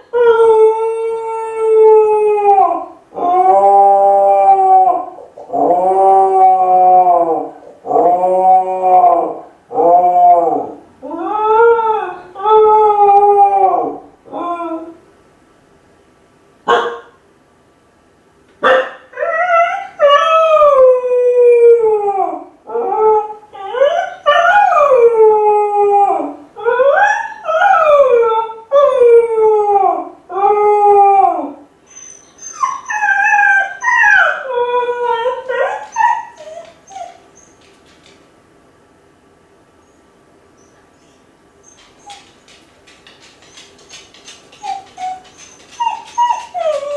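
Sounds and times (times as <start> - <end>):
dog howling: 0.1 - 15.0, 19.1 - 38.2, 41.6 - 46.9
dog yelp: 16.7 - 17.1, 35.0 - 38.1, 41.6 - 46.9.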